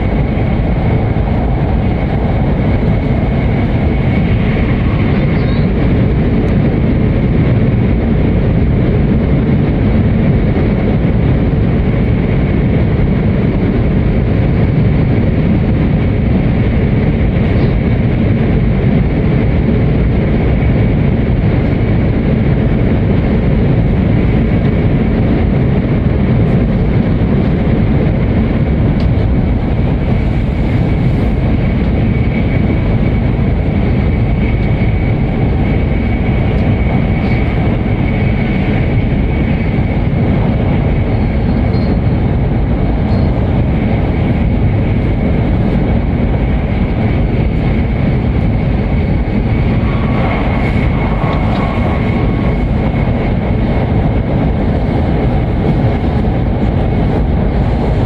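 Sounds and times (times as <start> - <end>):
train rumble in tunnel: 0.0 - 58.0.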